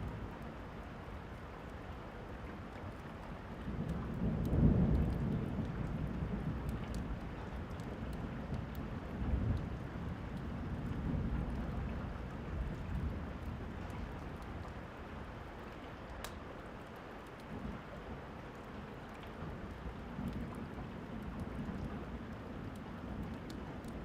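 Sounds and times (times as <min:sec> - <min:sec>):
steady rain falling: 0:00.0 - 0:24.0
fireplace crackles: 0:15.7 - 0:17.5.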